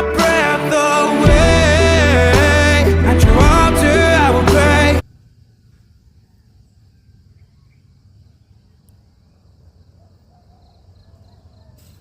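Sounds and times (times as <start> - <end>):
cricket chirping: 5.0 - 12.0.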